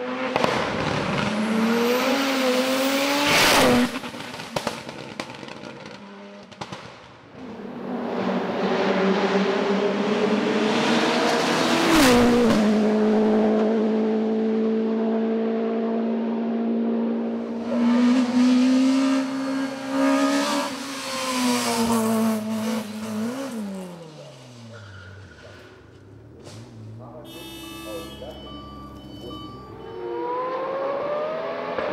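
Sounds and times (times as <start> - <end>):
racing car engine at high revs: 0.0 - 31.9.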